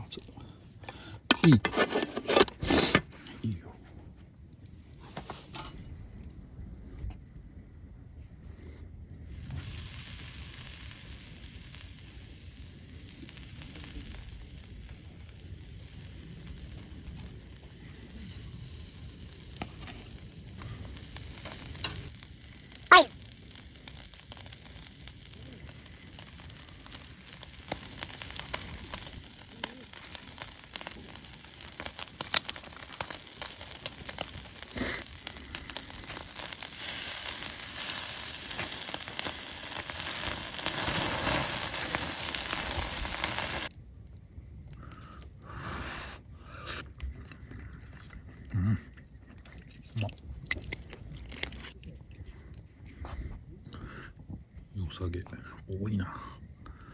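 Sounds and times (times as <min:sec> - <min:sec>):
food sizzling in a pan: 0:09.3 - 0:43.7.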